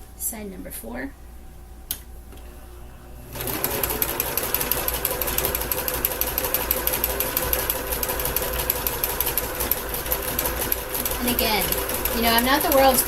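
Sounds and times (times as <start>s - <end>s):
sewing machine running: 3.3s - 13.0s.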